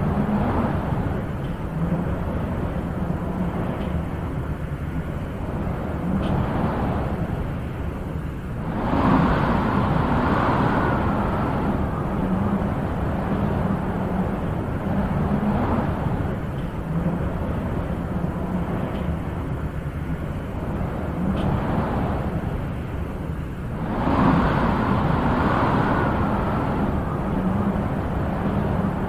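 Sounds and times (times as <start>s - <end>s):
gusty wind rushing: 0.0s - 29.0s.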